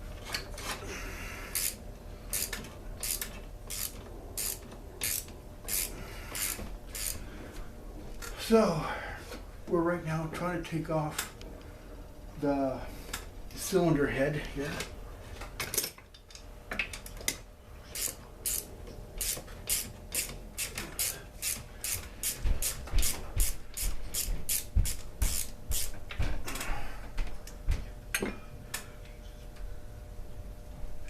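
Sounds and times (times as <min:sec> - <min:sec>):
hand tool rasping strokes: 0:02.4 - 0:07.2.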